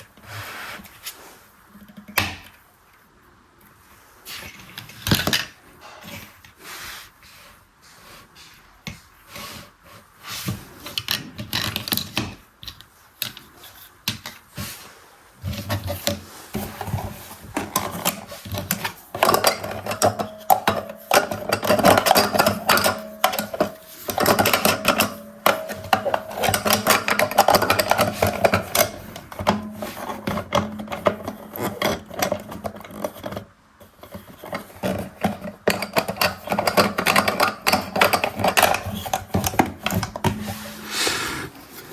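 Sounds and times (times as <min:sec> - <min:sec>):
toy washing machine clicking and rattling: 0:15.4 - 0:40.9.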